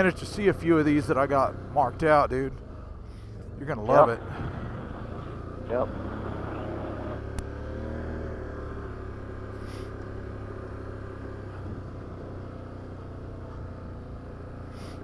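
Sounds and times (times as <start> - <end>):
atv engine running: 3.8 - 15.0.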